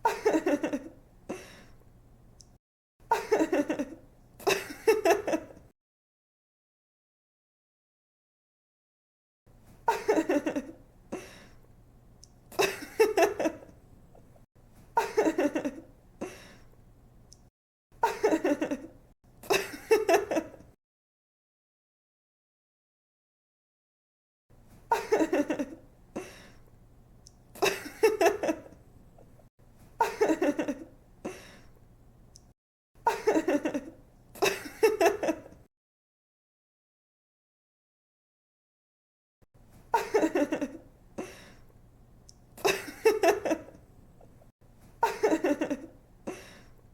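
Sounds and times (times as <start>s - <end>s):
young woman giggling: 0.0s - 1.5s, 3.1s - 5.6s, 9.9s - 10.8s, 12.5s - 13.7s, 18.0s - 20.7s, 24.9s - 26.3s, 30.0s - 30.9s, 33.1s - 35.6s, 40.0s - 40.9s, 42.6s - 43.8s, 45.0s - 46.5s.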